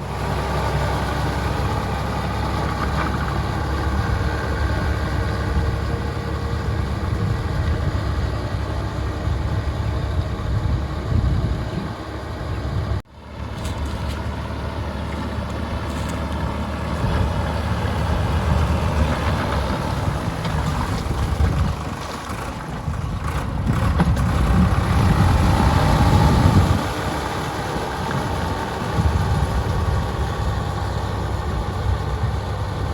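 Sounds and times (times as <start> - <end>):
diesel tractor engine under load: 0.0 - 32.9
rotavator churning wet mud: 13.3 - 32.9.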